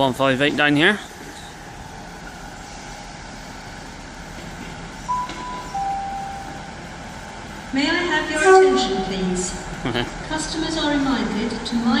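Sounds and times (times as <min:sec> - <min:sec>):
diesel train engine rumble: 0:00.0 - 0:12.0
two-note pa chime: 0:05.1 - 0:06.8, 0:08.4 - 0:09.0.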